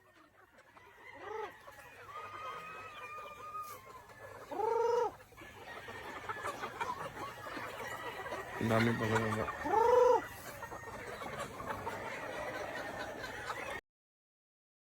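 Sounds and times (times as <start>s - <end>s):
chicken short calls: 1.2s - 13.8s
distant rooster crowing: 8.1s - 10.3s.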